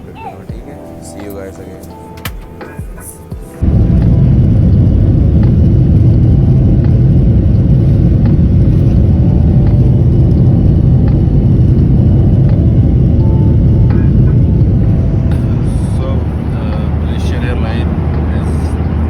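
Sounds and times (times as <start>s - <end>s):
jet engines at high thrust: 3.6s - 19.0s
wheels rumbling on runway: 3.6s - 19.0s.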